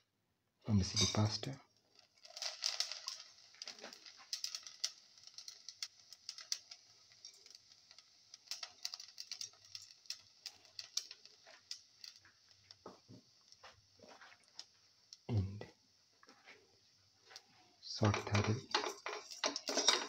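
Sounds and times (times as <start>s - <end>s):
vermicelli crackling in hot fat: 1.2s - 20.0s.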